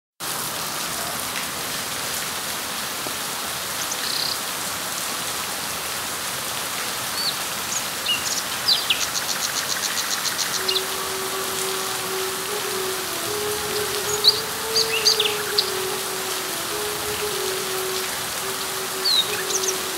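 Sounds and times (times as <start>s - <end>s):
rain falling on leaves: 0.2s - 19.9s
bird chirping: 10.1s - 19.9s.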